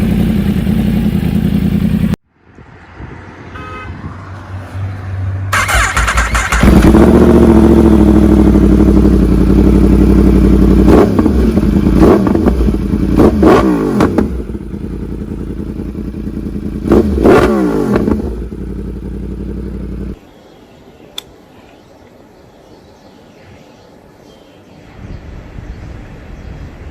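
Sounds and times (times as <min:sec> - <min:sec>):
motorcycle engine revving: 0:00.0 - 0:02.2, 0:05.5 - 0:20.2.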